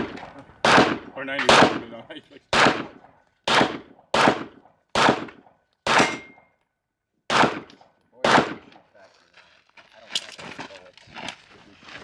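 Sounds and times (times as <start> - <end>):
pistol shots with echo: 0.0 - 6.5, 7.3 - 8.9
struck steel ringing: 6.0 - 6.5.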